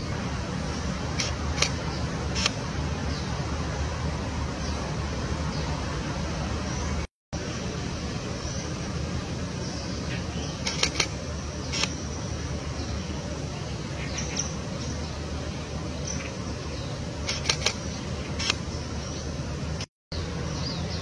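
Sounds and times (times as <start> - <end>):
distant traffic: 0.0 - 21.0
sharp clicks: 1.2 - 2.6, 10.6 - 12.0, 17.2 - 18.6.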